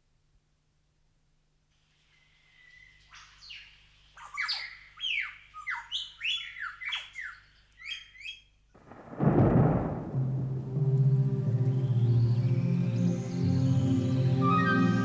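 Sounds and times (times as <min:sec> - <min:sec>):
low swell of music: 0:09.4 - 0:15.0.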